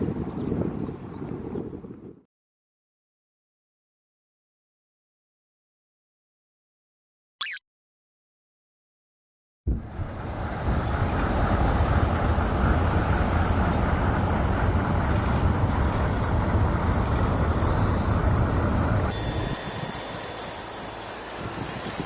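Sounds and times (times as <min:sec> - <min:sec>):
steady outdoor rumbling: 0:09.7 - 0:19.1
high insect-like trill: 0:19.1 - 0:22.0.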